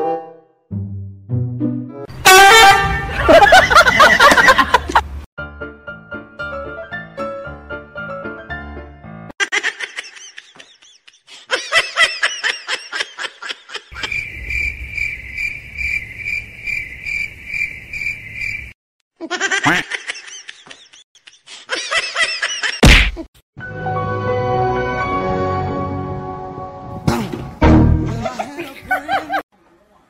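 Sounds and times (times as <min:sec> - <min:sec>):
high squealing laughter: 0:09.4 - 0:14.2.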